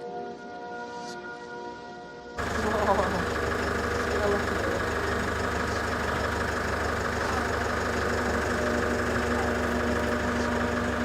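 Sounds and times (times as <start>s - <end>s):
engine idling: 2.4s - 11.0s.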